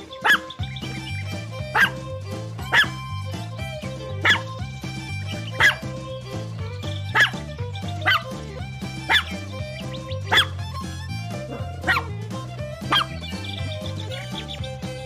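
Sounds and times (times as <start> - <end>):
background music: 0.0 - 15.0
puppy barking: 0.1 - 0.6, 1.7 - 3.0, 4.2 - 4.6, 5.6 - 5.9, 7.1 - 7.4, 8.0 - 8.3, 9.1 - 9.4, 10.3 - 10.6, 11.4 - 12.1, 12.9 - 13.2.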